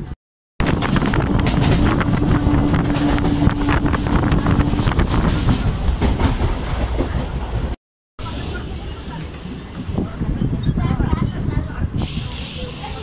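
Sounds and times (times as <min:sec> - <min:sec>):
wind rushing over microphone: 0:00.6 - 0:07.0, 0:09.4 - 0:13.0
train wheels clattering on track: 0:00.6 - 0:10.7.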